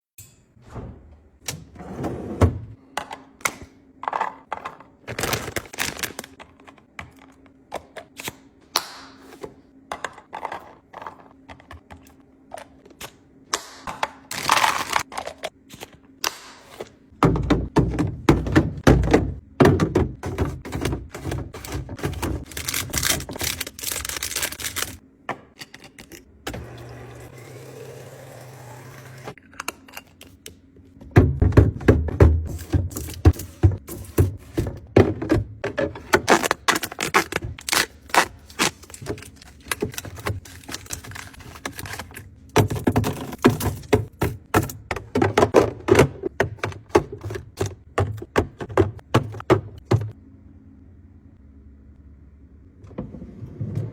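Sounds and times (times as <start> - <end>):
containers knocking and clattering: 17.2 - 25.9, 31.0 - 37.6, 39.0 - 50.2.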